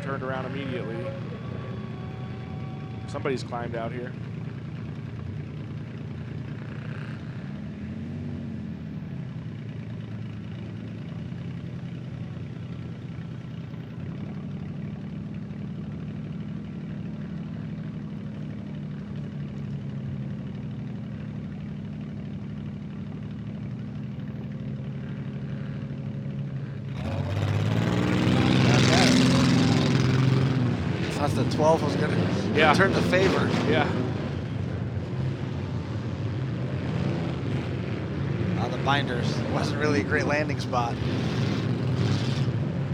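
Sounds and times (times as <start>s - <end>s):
engine revving: 0.0s - 11.3s, 24.9s - 42.9s
car engines idling: 0.0s - 42.9s.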